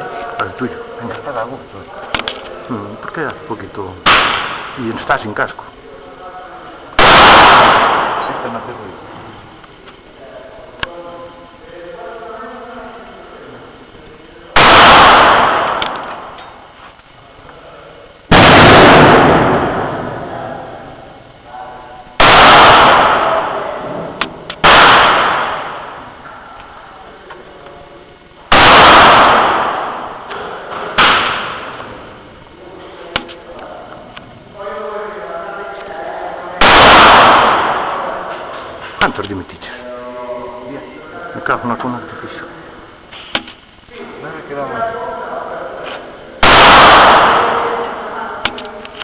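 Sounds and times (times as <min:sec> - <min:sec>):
pistol shot crack: 0:04.1 - 0:04.8, 0:07.0 - 0:08.6, 0:14.6 - 0:16.4, 0:18.3 - 0:20.0, 0:22.2 - 0:23.6, 0:24.2 - 0:26.0, 0:28.5 - 0:32.0, 0:36.6 - 0:38.4, 0:46.4 - 0:47.8.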